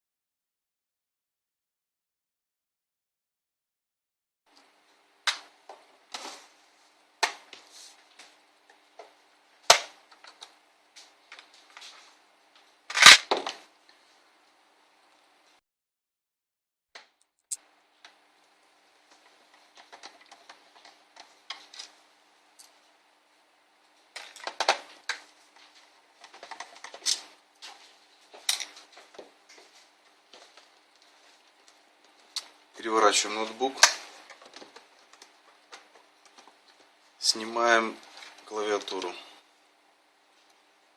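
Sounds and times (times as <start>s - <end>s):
laptop parts clicking and clattering: 19.2s - 22.0s, 24.2s - 25.3s, 26.2s - 27.3s, 33.8s - 36.9s.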